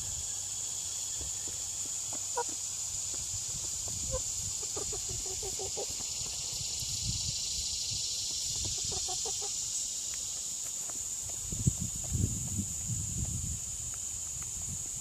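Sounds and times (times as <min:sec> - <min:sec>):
steady high-pitched hiss: 0:00.0 - 0:15.0
chickens clucking: 0:01.2 - 0:11.4.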